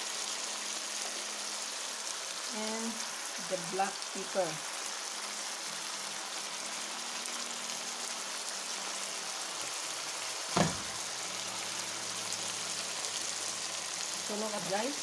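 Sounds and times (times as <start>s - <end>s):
meat and vegetables sizzling in a pan: 0.0s - 15.0s
sharp knock: 10.6s - 10.9s.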